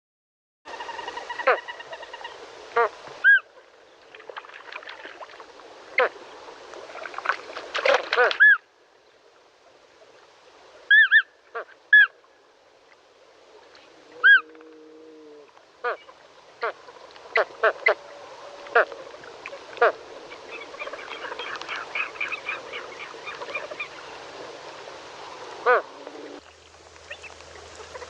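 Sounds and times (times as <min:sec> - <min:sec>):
flamingos calling: 0:00.7 - 0:03.5, 0:06.0 - 0:06.2, 0:08.1 - 0:08.6, 0:10.9 - 0:12.2, 0:14.1 - 0:15.0, 0:15.8 - 0:26.4, 0:27.0 - 0:28.0.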